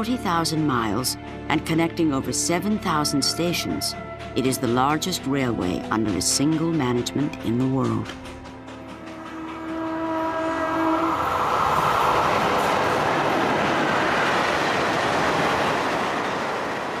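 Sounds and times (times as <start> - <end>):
train wheels rushing on rails: 4.6 - 17.0.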